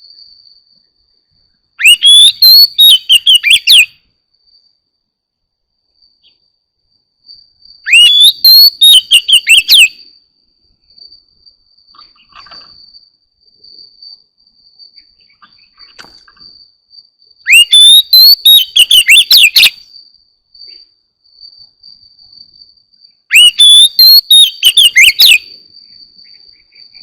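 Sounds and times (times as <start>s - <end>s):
faint high-pitched insect trill: 0.0s - 27.0s
bird singing whistled phrases: 1.8s - 3.9s, 7.9s - 9.9s, 17.5s - 19.7s, 23.3s - 25.4s.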